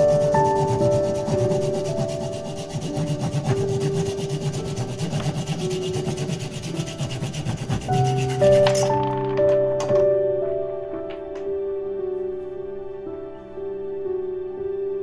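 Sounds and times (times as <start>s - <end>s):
saw cutting wood: 0.0s - 8.9s
soft sustained music: 0.0s - 15.0s.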